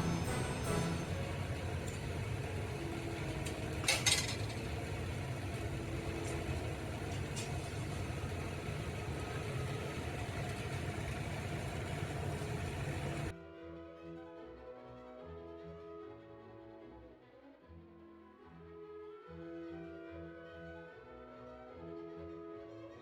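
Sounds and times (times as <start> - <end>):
low mechanical rumble: 0.0 - 13.3
short clatter: 3.4 - 4.8.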